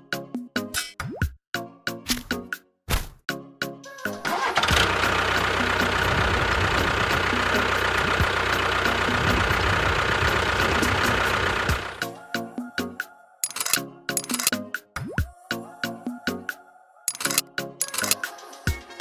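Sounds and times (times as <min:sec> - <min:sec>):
engine rumbling: 0:04.3 - 0:12.0.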